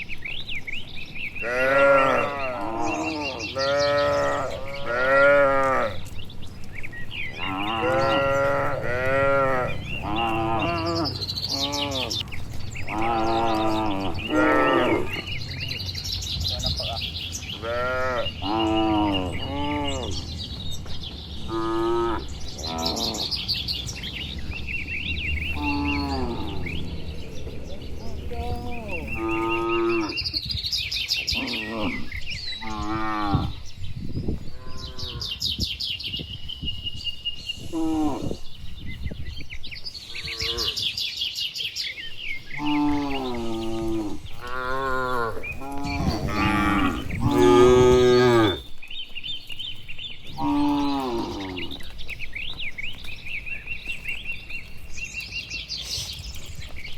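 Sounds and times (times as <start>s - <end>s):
cattle mooing: 1.4s - 6.0s, 7.4s - 15.4s, 17.6s - 20.2s, 21.5s - 23.3s, 25.5s - 27.1s, 28.2s - 30.2s, 42.6s - 48.7s, 50.3s - 51.8s.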